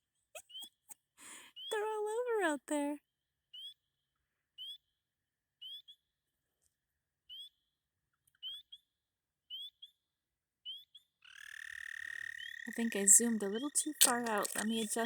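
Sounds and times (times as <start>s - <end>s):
frogs peeping: 10.7s - 15.0s
toad trilling: 11.3s - 15.0s.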